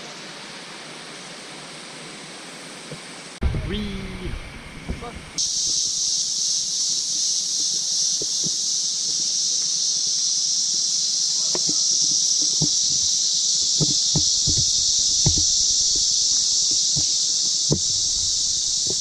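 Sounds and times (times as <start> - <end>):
cicada chorus drone: 0.0 - 19.0
soft low knocks: 11.6 - 19.0.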